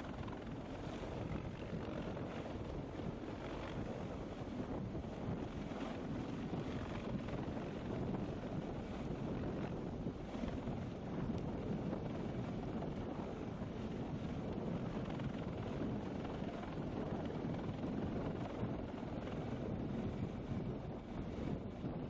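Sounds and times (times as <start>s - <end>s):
steady rumbling noise: 0.0s - 22.0s
wind buffeting microphone: 0.0s - 22.0s.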